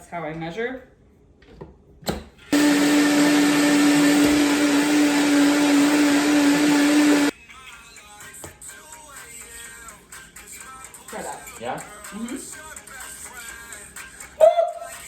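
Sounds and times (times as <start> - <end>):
blender running: 2.6 - 7.3.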